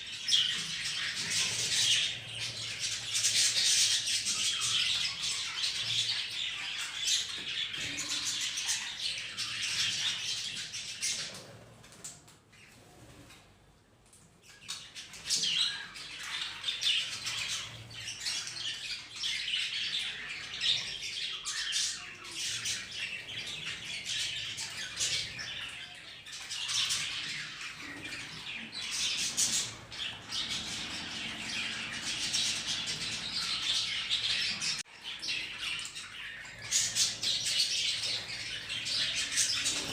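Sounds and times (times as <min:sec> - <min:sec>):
budgerigars chattering and chirping: 0:00.1 - 0:11.5, 0:15.1 - 0:39.9.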